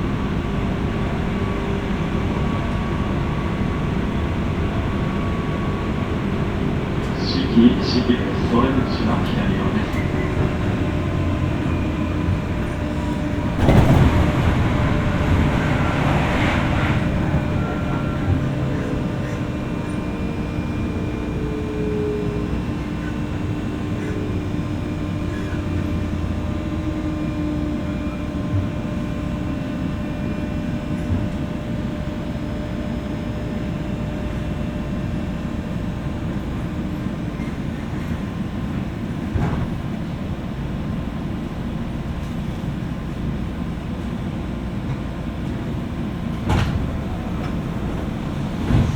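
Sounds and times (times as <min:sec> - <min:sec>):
train wheels rumbling on track: 0:00.0 - 0:48.9.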